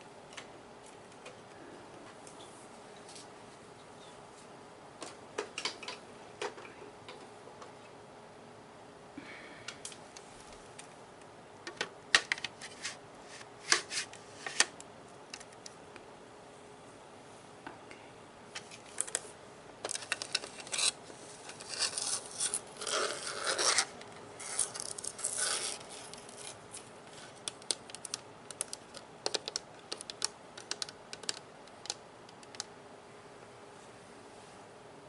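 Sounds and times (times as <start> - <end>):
scratching on plastic toy gun: 19.9 - 27.4.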